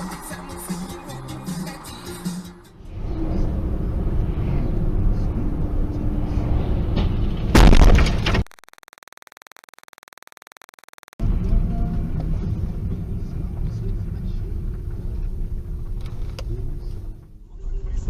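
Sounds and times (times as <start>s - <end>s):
car road and engine rumble: 2.6s - 8.2s, 11.2s - 18.0s
loud crash impact: 6.8s - 8.4s
faint electronic buzz: 8.5s - 11.2s.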